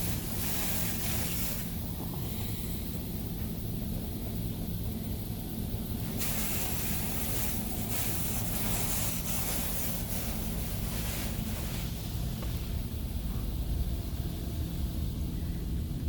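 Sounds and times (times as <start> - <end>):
low machinery hum: 0.0 - 16.0
water spray hitting car: 6.1 - 12.0.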